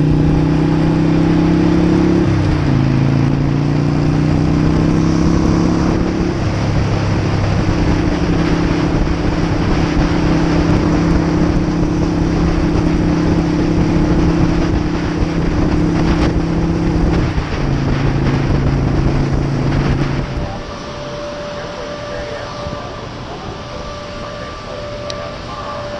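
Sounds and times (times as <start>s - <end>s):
motorcycle engine running: 0.0s - 25.9s
wind rush on microphone: 0.0s - 25.9s.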